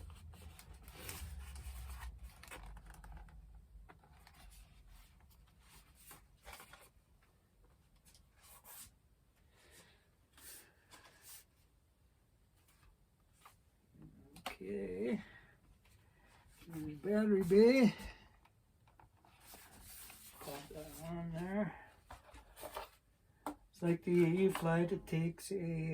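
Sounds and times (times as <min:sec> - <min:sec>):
soft rubbing and rustling: 0:00.0 - 0:11.8, 0:18.9 - 0:25.9
quiet scrapes and rustles: 0:19.0 - 0:23.0.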